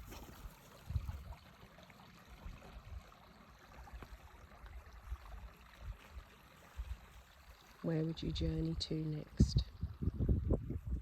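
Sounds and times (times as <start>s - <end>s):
stream running water: 0.0s - 11.0s.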